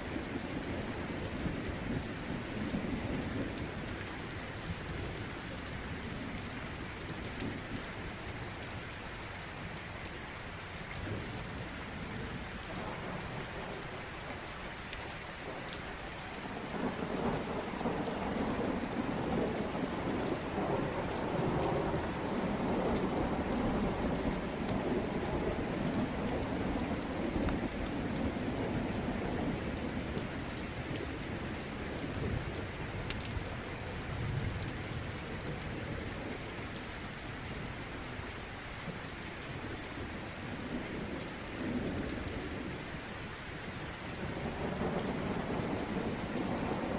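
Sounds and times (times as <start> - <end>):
steady rain falling: 0.0 - 46.9
low roll of thunder: 16.4 - 36.4, 44.2 - 46.9.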